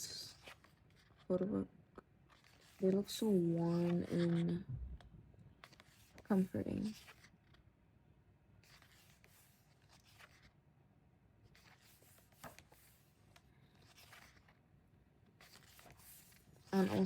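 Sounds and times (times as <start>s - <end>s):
paper pages rustling: 0.2s - 1.3s, 2.2s - 4.6s, 5.6s - 7.7s, 8.6s - 10.6s, 11.4s - 14.6s, 15.2s - 17.0s.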